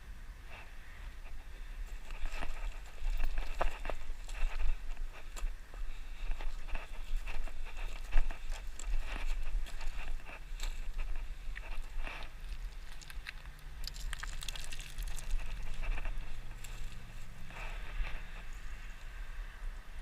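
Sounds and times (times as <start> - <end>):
wind rumbling on microphone: 0.1 - 20.0
footsteps crunching on gravel: 1.8 - 18.5.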